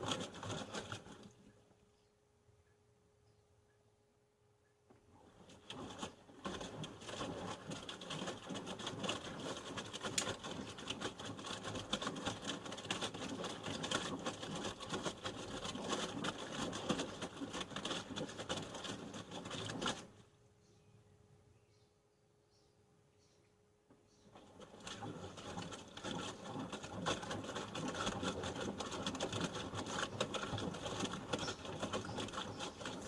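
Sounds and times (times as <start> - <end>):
laundry tumbling in washing machine: 0.0 - 1.3, 5.2 - 20.2, 24.3 - 33.0.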